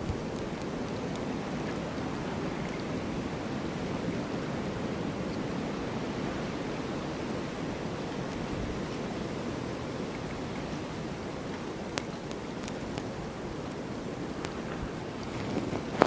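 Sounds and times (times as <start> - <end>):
snowstorm wind rushing: 14.8 - 16.0.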